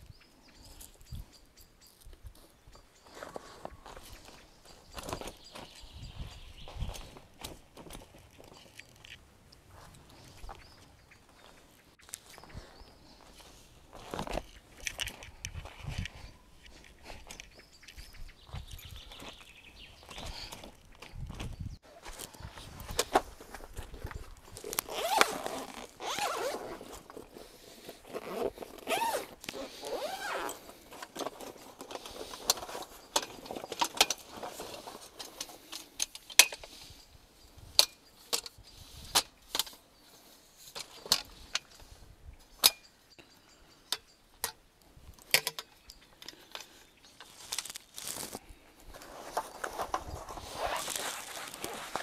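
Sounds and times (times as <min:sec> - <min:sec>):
zipper pulled: 0:24.7 - 0:27.4, 0:28.0 - 0:30.7, 0:50.2 - 0:52.0.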